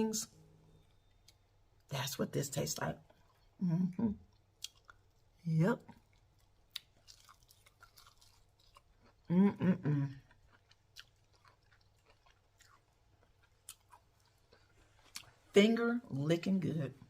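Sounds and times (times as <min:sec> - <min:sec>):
person humming: 0:03.6 - 0:04.2, 0:09.3 - 0:10.1
crunchy chewing: 0:04.3 - 0:05.3, 0:05.9 - 0:09.3, 0:10.0 - 0:15.4.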